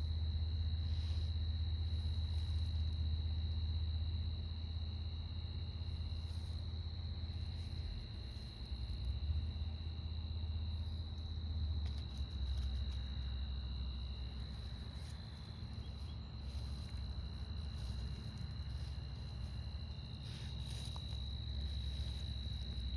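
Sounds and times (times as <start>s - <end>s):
insects trilling: 0.0s - 22.9s
low steady rumble: 0.0s - 22.9s
lower insect trill: 0.0s - 22.9s.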